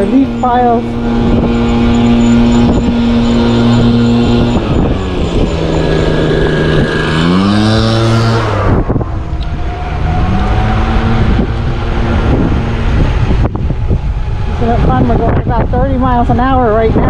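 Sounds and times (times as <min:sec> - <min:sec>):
leaf blower engine revving: 0:00.0 - 0:15.2
rush of wind and tyres: 0:00.0 - 0:17.0.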